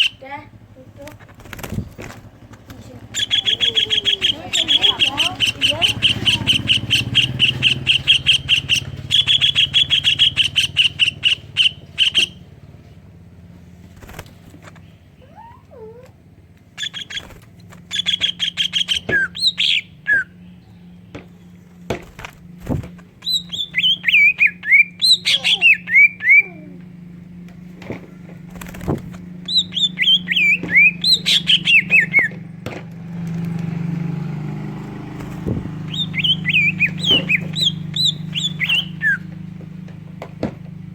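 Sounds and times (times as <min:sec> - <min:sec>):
songbird singing sharp repeated notes: 0:00.0 - 0:00.5, 0:02.8 - 0:12.6, 0:16.6 - 0:21.8, 0:22.4 - 0:27.0, 0:28.4 - 0:32.6, 0:33.6 - 0:39.8.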